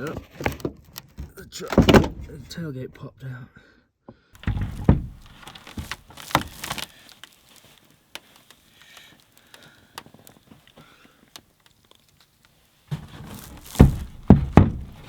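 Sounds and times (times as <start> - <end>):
sharp knocks: 4.4 - 5.5, 13.0 - 15.0
tailgate heavy thump: 4.4 - 6.0, 12.9 - 15.0
rustling: 4.4 - 15.0.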